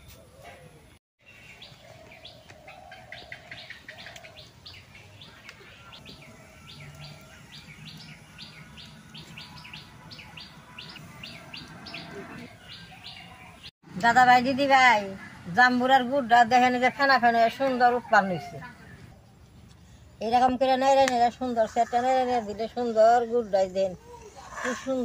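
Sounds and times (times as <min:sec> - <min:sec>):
small bird chirping: 0:01.2 - 0:13.7.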